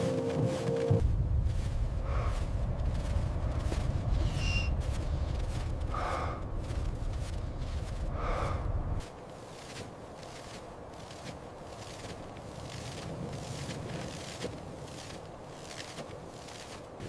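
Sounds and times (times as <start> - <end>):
low rumble: 1.0 - 9.0
person gasping for breath: 5.9 - 6.5, 8.1 - 8.7.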